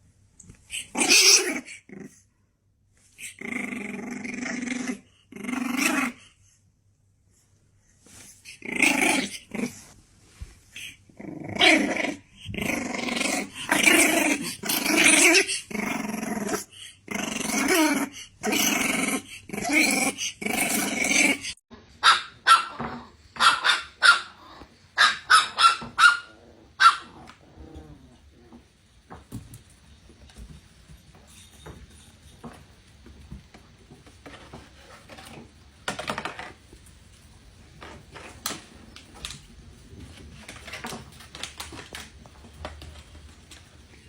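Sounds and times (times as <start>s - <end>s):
dog growling: 3.2s - 6.2s, 8.5s - 9.9s, 10.8s - 21.6s, 26.3s - 28.6s
dog barking sharply: 22.0s - 22.8s, 23.4s - 24.3s, 25.0s - 27.1s.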